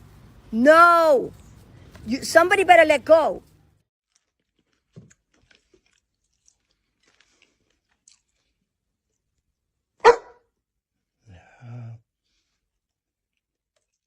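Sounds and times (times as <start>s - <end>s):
teeth crunching on a toy: 4.1s - 9.2s
dog barking: 10.0s - 10.5s.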